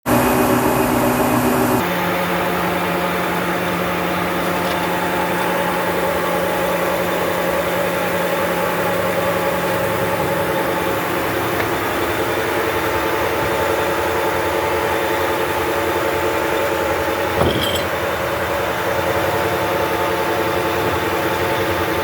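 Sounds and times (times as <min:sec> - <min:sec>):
sawmill machinery humming: 0:00.1 - 0:22.0
steady machine drone: 0:00.1 - 0:22.0.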